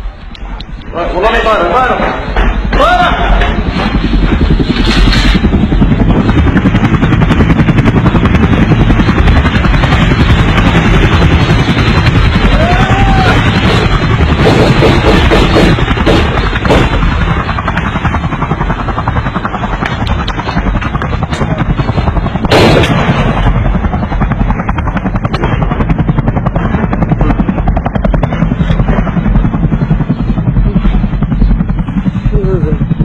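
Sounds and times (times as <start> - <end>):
helicopter rotor throb: 0.0 - 33.0
sharp bang: 22.5 - 23.4.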